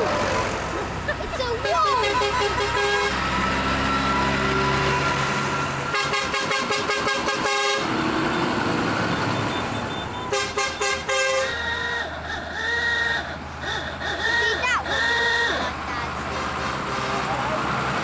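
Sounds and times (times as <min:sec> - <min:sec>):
engines running: 0:00.0 - 0:18.0
vehicle horns tooting: 0:00.0 - 0:18.0.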